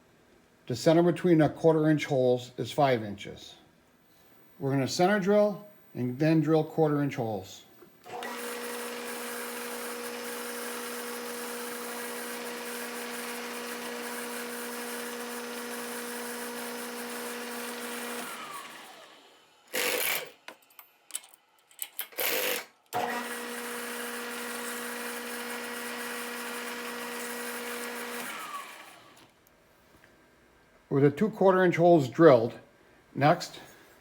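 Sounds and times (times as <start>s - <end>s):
milling machine spindle humming: 8.1s - 19.3s.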